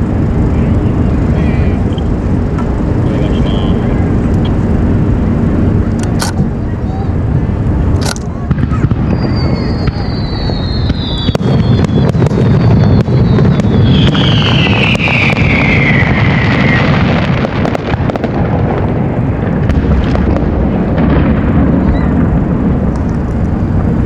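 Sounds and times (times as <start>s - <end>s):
low continuous rumble: 0.0s - 24.0s
whistling fireworks: 0.0s - 24.0s
firework shells bursting: 7.9s - 23.9s.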